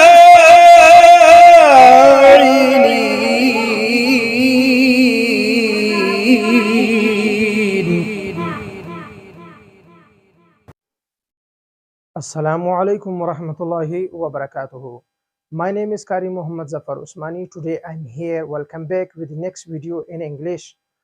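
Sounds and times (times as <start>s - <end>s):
man chanting melodically: 0.0s - 9.6s.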